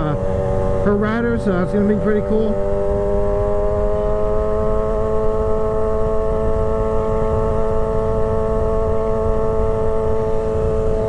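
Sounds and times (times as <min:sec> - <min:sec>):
motorcycle engine cruising: 0:00.0 - 0:11.0
wind rumble on microphone: 0:00.0 - 0:11.0.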